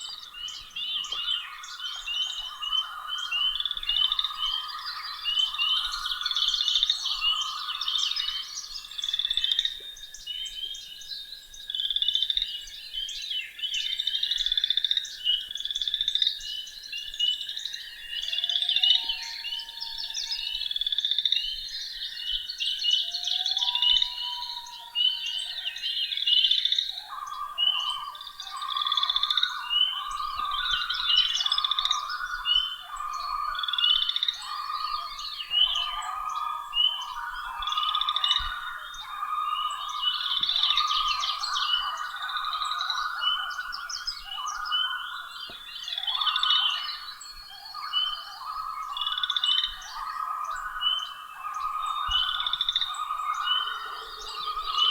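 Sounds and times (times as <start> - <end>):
frog chorus trilling: 0.0 - 9.8, 22.8 - 54.9
low-pitched repeated frog calls: 26.5 - 54.9.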